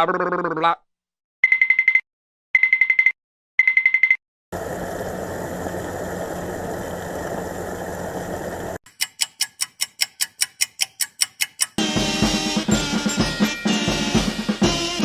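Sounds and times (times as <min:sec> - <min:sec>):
rapid even ticking: 0:08.9 - 0:11.8.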